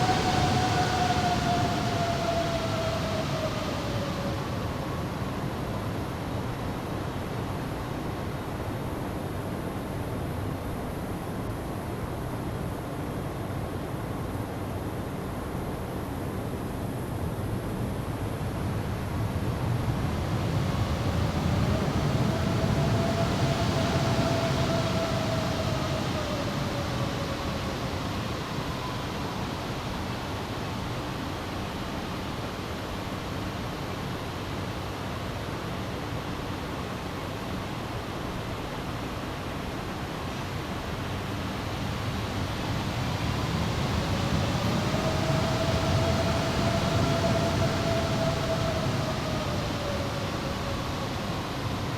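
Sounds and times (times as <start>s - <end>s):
jet engines rumbling: 0.0s - 6.7s, 18.0s - 31.6s, 37.7s - 51.9s
faint engine whine: 0.0s - 51.9s.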